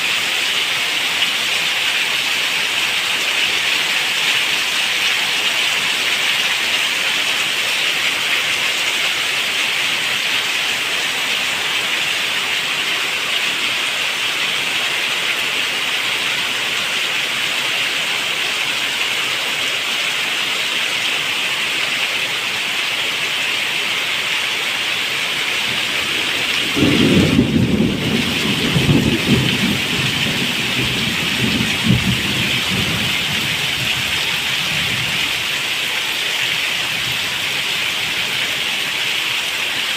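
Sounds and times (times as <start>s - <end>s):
heavy rain falling: 0.0s - 39.9s
thunder rumbling: 25.7s - 35.2s.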